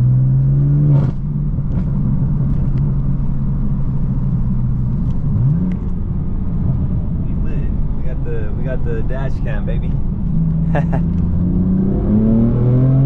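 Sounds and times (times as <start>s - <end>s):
car engine running while driving: 0.0s - 13.0s.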